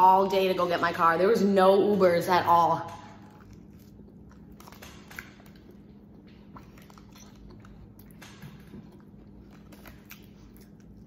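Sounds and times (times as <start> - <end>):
low steady hum: 0.0 - 11.0
wet chewing clicks: 2.9 - 11.0.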